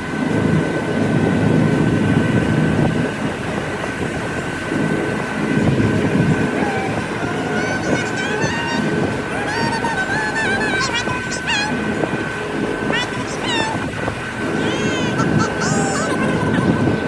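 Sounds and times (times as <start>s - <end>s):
engine drone: 0.0s - 17.0s
high whine: 0.0s - 17.0s.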